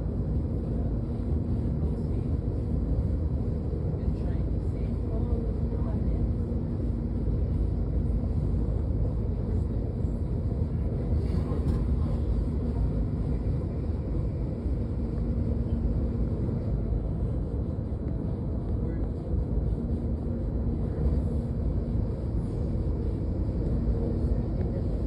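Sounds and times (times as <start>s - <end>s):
faint hum: 0.0s - 25.0s
train rumbling: 6.8s - 25.0s.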